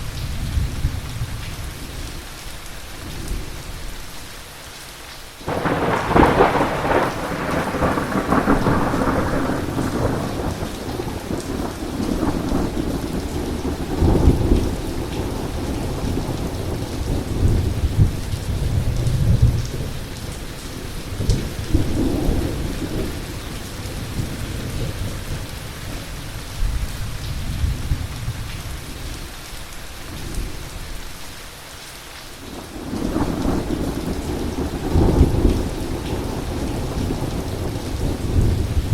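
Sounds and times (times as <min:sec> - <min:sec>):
heavy rain falling: 0:00.0 - 0:38.9
thunder: 0:05.5 - 0:20.0, 0:32.6 - 0:38.9.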